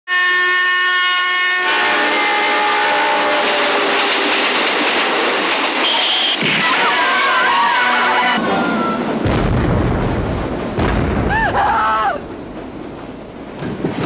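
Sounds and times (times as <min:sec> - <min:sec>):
locomotive horn: 0:00.1 - 0:04.4, 0:05.8 - 0:09.2
train speeding past: 0:01.7 - 0:09.3.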